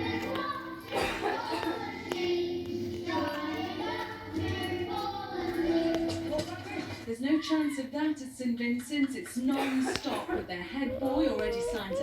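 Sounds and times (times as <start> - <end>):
children singing: 0.0 - 7.0, 10.8 - 12.0.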